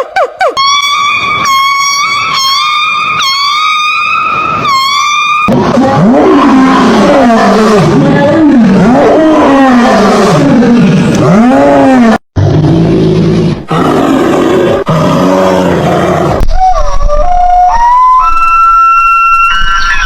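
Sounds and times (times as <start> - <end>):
high gliding whistle-like call: 16.7 - 20.0.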